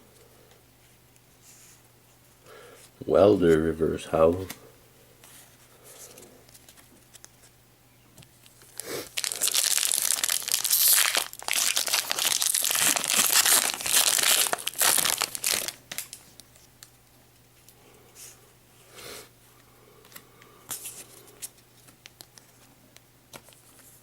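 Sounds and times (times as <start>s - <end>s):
foil wrapper crinkling and tearing: 8.6s - 16.5s.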